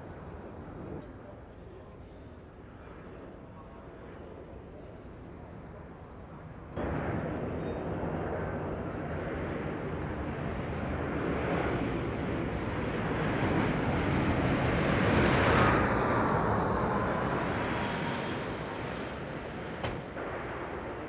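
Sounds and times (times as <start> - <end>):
jet aircraft flying past: 6.8 - 21.0.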